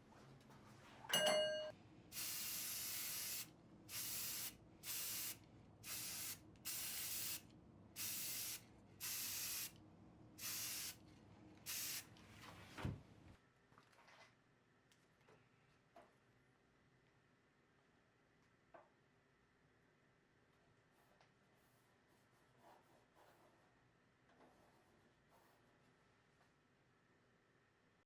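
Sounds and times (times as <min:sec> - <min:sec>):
ringing metallic ding: 0:01.1 - 0:01.8
hissing spray bursts: 0:02.1 - 0:07.4, 0:08.0 - 0:09.8, 0:10.4 - 0:11.0, 0:11.7 - 0:12.1.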